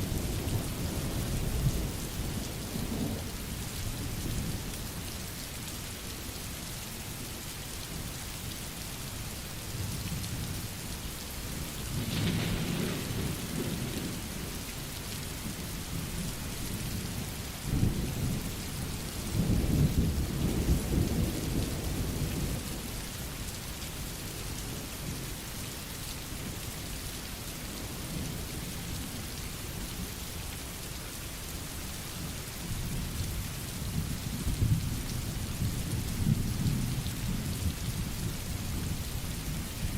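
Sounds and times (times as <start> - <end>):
steady rain falling: 0.0 - 39.9
thunder rumbling: 12.0 - 14.2.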